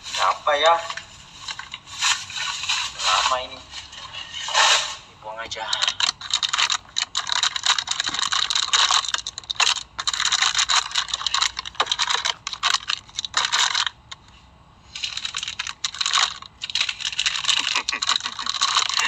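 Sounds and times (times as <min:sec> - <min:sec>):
packaging crinkling and rustling: 0:00.8 - 0:03.0, 0:03.8 - 0:14.3, 0:14.9 - 0:19.0
small clicks and rattles: 0:05.4 - 0:19.0.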